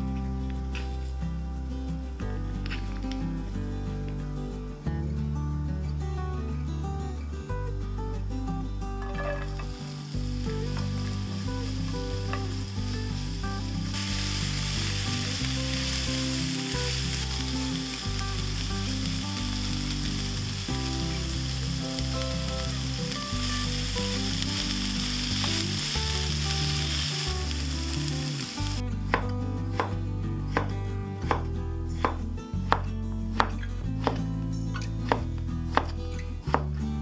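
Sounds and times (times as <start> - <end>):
soft background music: 0.0 - 37.0
food sizzling in a frying pan: 9.1 - 28.8
knife chopping on cutting board: 33.4 - 34.2.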